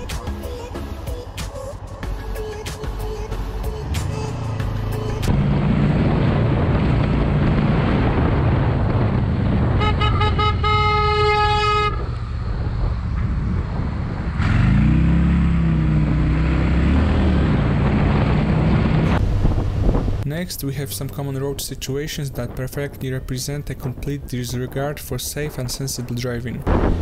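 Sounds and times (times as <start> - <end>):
engine and road noise: 0.0 - 27.0
engine revving: 2.8 - 20.2
vehicle horn honking: 9.8 - 12.1.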